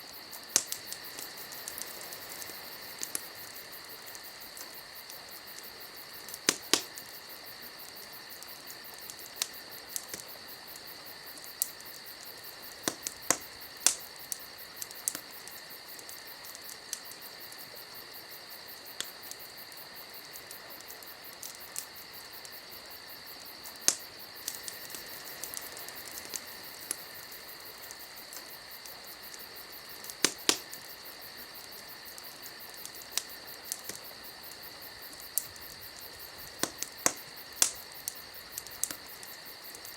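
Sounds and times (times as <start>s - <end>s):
steady high-pitched hiss: 0.0s - 39.9s
wood campfire crackling: 0.0s - 39.9s.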